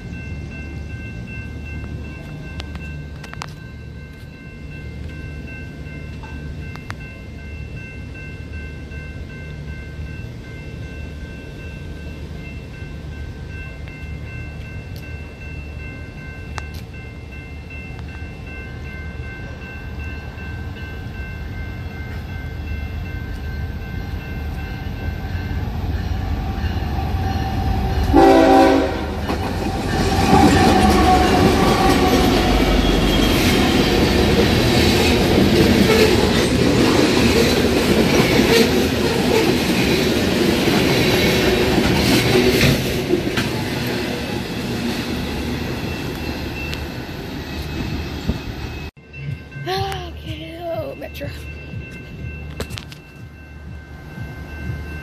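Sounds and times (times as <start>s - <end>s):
train rumble and wheel clatter: 0.0s - 55.0s
train horn blast: 28.0s - 29.4s, 30.0s - 32.8s.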